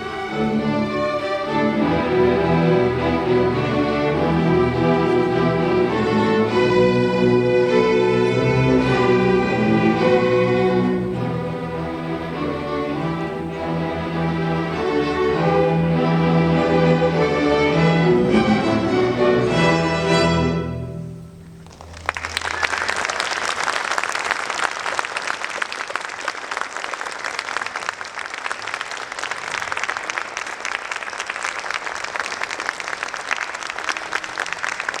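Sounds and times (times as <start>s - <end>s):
string orchestra playing: 0.0s - 23.0s
audience applauding: 21.6s - 35.0s.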